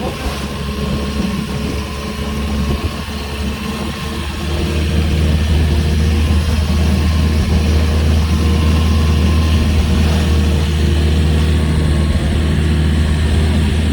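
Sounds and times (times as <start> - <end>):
motorboat engine humming: 0.0 - 13.9.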